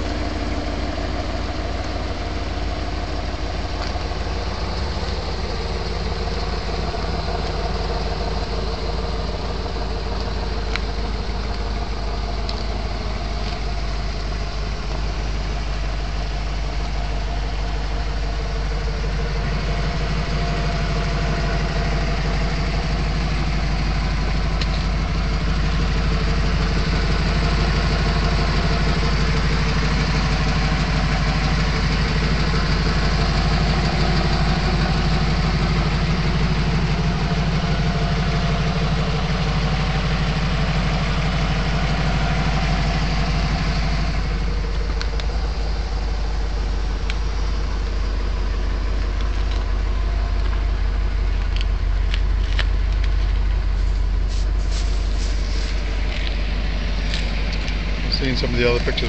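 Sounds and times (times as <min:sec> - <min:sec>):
car engine idling: 0:00.0 - 0:59.0
hiss: 0:53.7 - 0:57.8.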